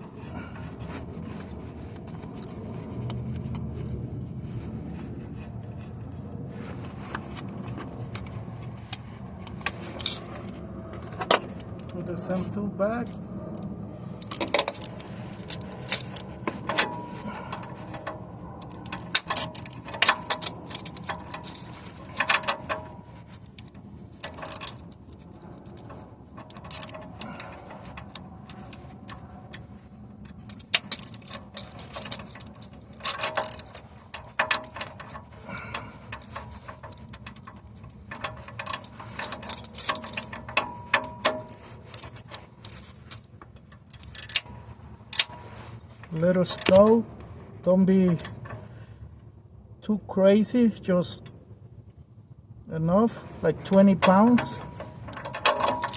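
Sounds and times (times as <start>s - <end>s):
ratchet wrench clicking: 30.2s - 42.2s, 43.8s - 44.5s, 54.0s - 55.9s
metal hand tools clinking: 53.6s - 55.9s.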